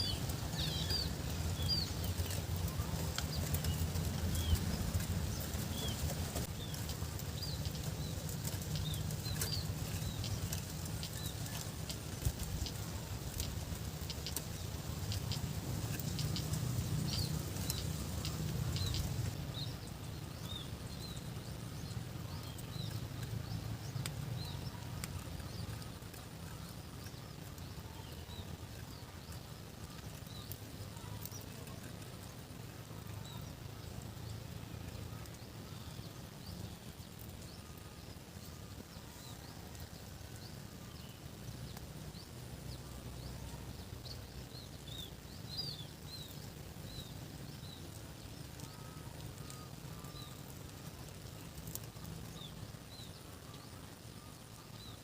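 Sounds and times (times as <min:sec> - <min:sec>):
steady low rumble: 0:00.0 - 0:30.8
small birds chirping: 0:00.0 - 0:55.0.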